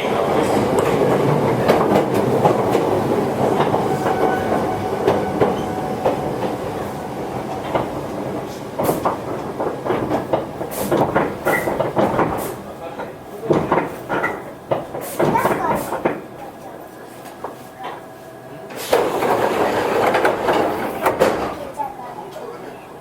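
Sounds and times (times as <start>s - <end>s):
train running noise: 0.0s - 23.0s
train wheels clicking over rail joints: 0.3s - 16.4s, 18.7s - 21.9s
sharp clicks and knocks: 0.7s - 12.6s.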